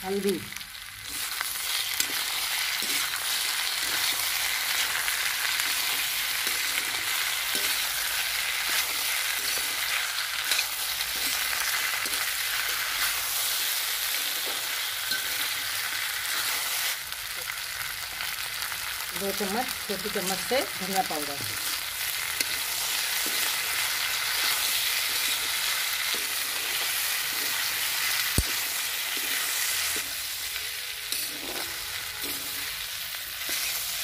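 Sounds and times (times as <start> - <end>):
vegetables sizzling in hot oil: 0.0 - 34.0
steel ladle scraping a pan: 5.9 - 13.3, 24.4 - 34.0.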